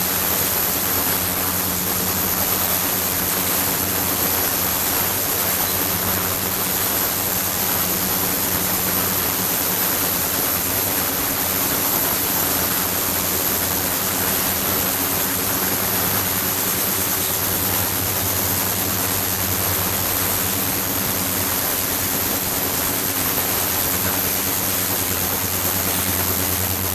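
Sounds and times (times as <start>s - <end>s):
high-pitched whine: 11.4s - 26.9s.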